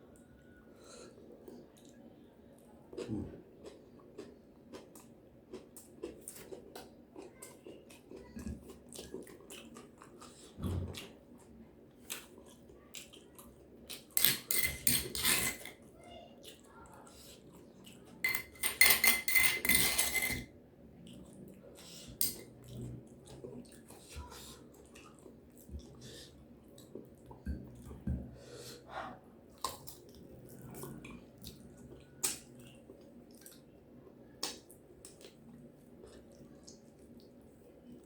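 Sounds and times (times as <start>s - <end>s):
person chewing: 2.9s - 11.2s
cutlery tapping plate: 14.2s - 15.7s, 18.3s - 20.4s.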